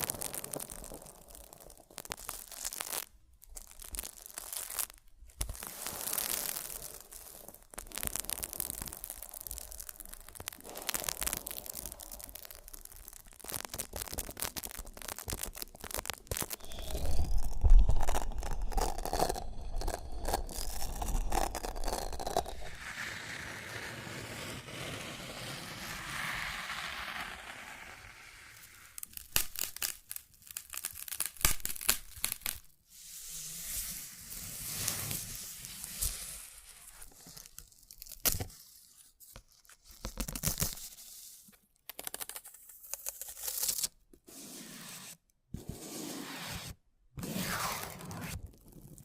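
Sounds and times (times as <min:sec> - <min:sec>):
rustling crinkling noise: 0:00.0 - 0:22.8, 0:34.6 - 0:43.9.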